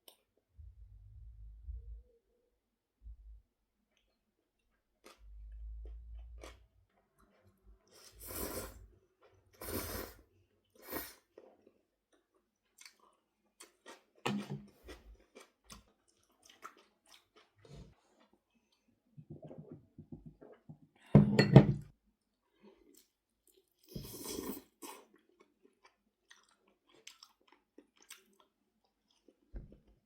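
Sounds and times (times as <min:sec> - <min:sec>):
person chewing and crunching: 0:05.0 - 0:08.4, 0:11.4 - 0:18.9, 0:22.6 - 0:29.9.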